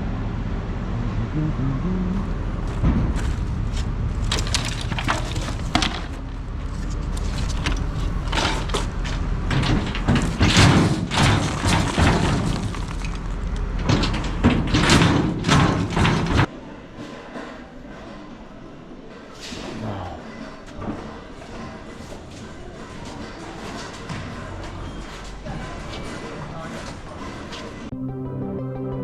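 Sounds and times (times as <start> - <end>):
steady low rumble: 0.0 - 10.2
debris crashing and clattering: 4.1 - 16.5.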